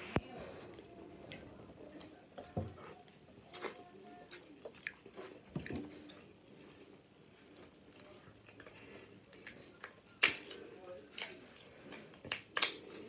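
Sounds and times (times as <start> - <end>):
person chewing with wet smacks: 1.3 - 11.4.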